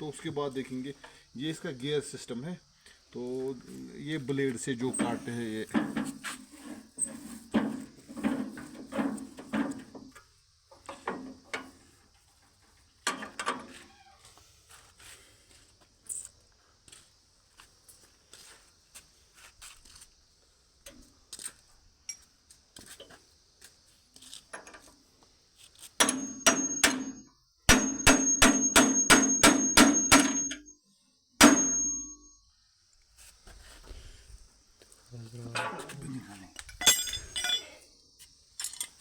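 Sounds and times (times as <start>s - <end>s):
light metal taps and clinks: 22.0s - 22.3s, 31.4s - 32.2s, 36.6s - 37.8s
small hammer striking metal: 26.0s - 30.7s, 31.4s - 32.3s.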